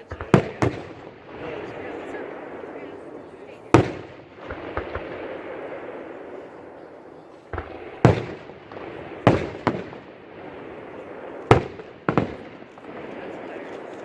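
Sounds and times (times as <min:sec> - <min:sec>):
fireworks bangs: 0:00.0 - 0:14.0.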